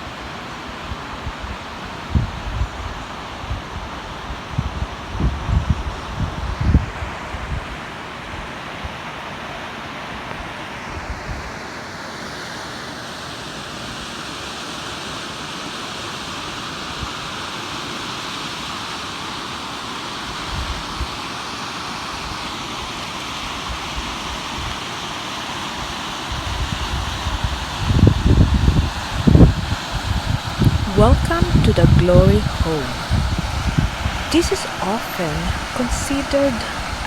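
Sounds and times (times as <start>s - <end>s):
wind bumping microphone: 4.6s - 7.6s, 27.9s - 34.3s
waterfall rushing: 34.4s - 37.0s.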